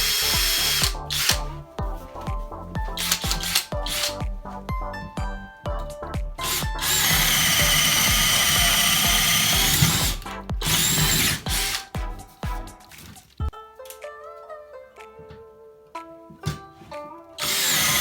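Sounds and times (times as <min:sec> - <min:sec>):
cordless drill running: 0:00.0 - 0:01.6, 0:03.0 - 0:04.2, 0:06.4 - 0:11.9, 0:17.4 - 0:18.0
background music with plucked notes: 0:00.0 - 0:18.0.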